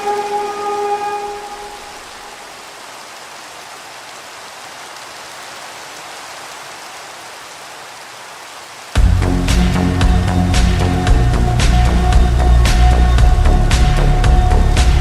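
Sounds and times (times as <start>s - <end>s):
slowed reverb music: 0.0s - 2.6s, 9.0s - 15.0s
steady rain hiss: 0.0s - 15.0s.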